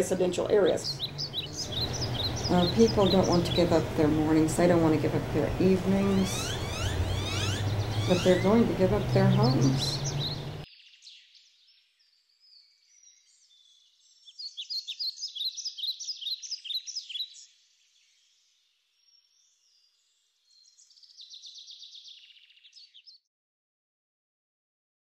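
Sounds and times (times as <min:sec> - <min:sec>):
buzzy bird trill: 0:00.0 - 0:10.6
songbirds chirping: 0:00.0 - 0:23.2.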